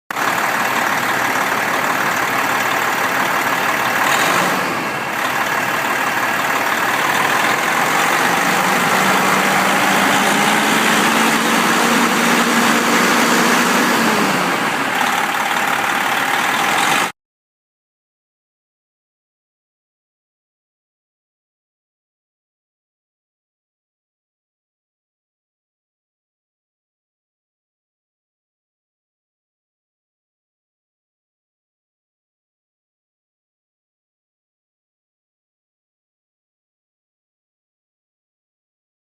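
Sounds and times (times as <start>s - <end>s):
diesel truck engine running: 0.1s - 17.2s.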